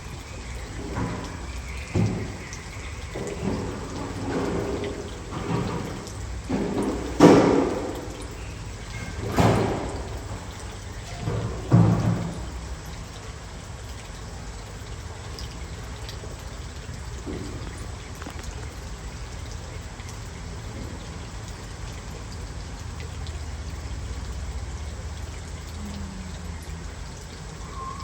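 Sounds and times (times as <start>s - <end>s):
water trickling and pouring: 0.0s - 28.0s.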